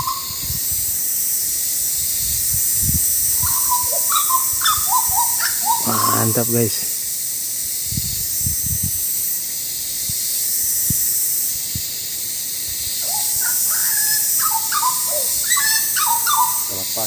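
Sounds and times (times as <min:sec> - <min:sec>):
bird fluting whistles: 0:00.0 - 0:00.4, 0:03.4 - 0:06.3, 0:13.0 - 0:16.9
steady high hiss: 0:00.0 - 0:17.0.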